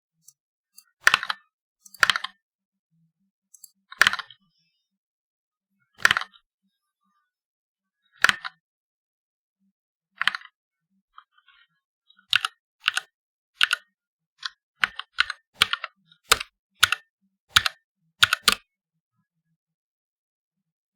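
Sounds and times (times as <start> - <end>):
mechanical keyboard key clacks: 3.6 - 4.2, 15.6 - 18.6.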